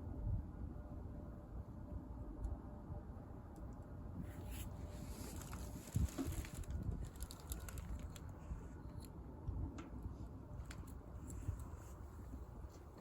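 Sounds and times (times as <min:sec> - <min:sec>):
low steady rumble: 0:00.0 - 0:13.0
wood fire crackling: 0:05.0 - 0:09.1.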